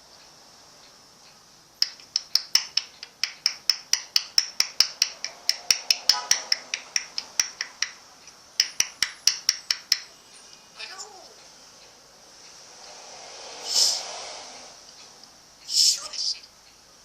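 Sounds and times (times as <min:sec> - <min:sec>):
rapid sharp clicks: 0:01.8 - 0:10.1.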